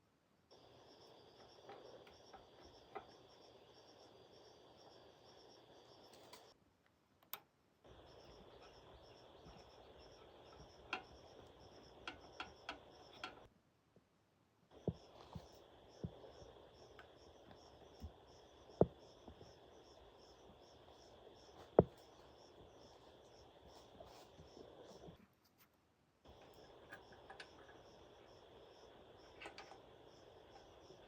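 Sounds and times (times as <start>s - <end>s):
insects chirping: 0.5s - 6.6s, 7.8s - 13.5s, 14.7s - 25.2s, 26.2s - 31.0s
light clicks and taps: 8.6s - 13.5s, 29.2s - 31.0s.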